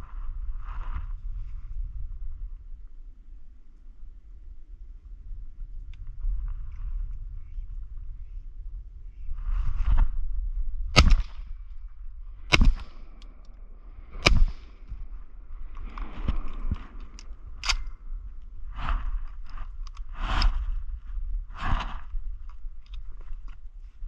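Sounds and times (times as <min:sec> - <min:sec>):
shotgun shots: 0:11.0 - 0:11.4, 0:12.5 - 0:13.0, 0:14.2 - 0:14.8.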